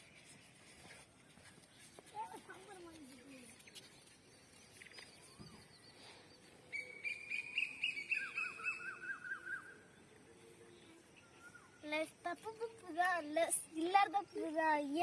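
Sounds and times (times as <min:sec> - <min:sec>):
lower bird call: 0:05.0 - 0:09.9.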